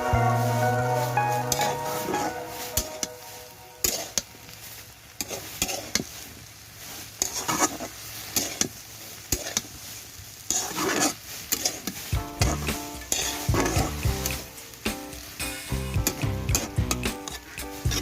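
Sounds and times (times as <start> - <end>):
faint sizzle: 0.0 - 18.0
spatula scraping a frying pan: 5.2 - 14.5, 16.6 - 18.0.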